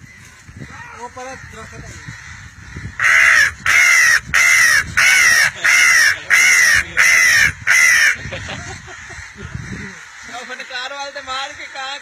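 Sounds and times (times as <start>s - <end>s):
person imitating crow caws: 2.8s - 8.3s.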